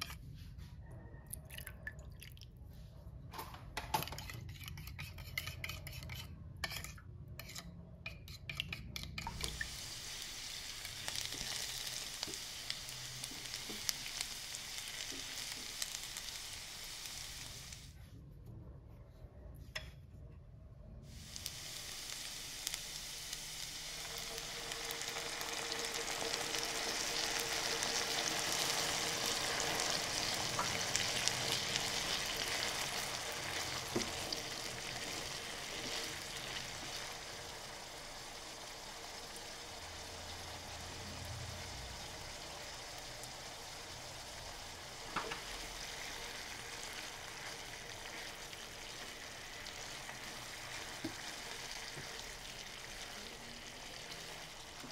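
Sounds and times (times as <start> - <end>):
food sizzling in a pan: 9.0 - 17.9, 21.1 - 54.9.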